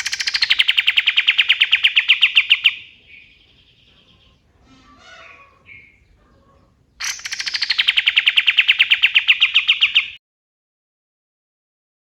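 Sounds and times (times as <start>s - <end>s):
bird rapid-fire rattle: 0.0s - 4.4s, 5.1s - 10.2s
songbird singing: 0.0s - 10.2s.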